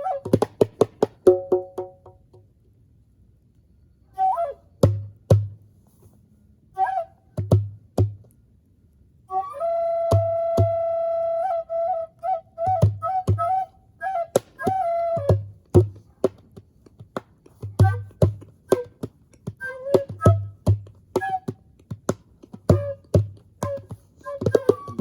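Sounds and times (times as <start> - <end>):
breathy flute playing: 0.0 - 0.7, 4.0 - 5.2, 6.7 - 7.4, 9.3 - 16.0, 17.6 - 21.8, 22.6 - 25.0.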